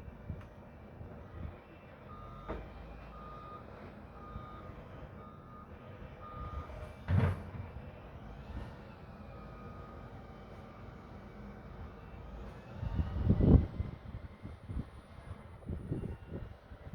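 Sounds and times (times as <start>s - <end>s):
reversing alarm beeping: 2.1s - 6.8s.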